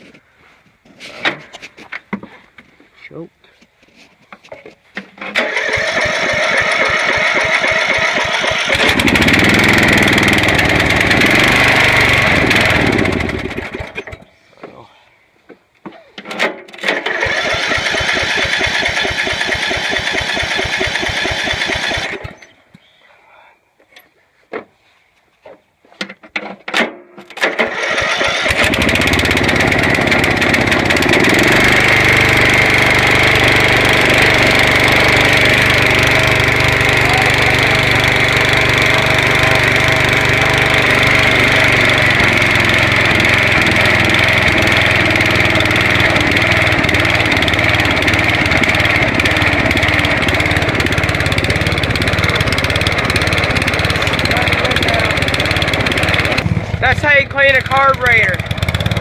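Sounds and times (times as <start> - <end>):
lawn mower engine running: 5.2 - 14.3, 16.3 - 22.6, 27.4 - 59.0
high engine whine: 5.4 - 14.2, 27.7 - 59.0.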